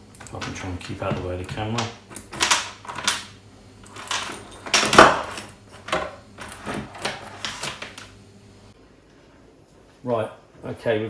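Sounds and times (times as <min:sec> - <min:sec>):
saw chain clinking and rattling: 0:00.0 - 0:08.2.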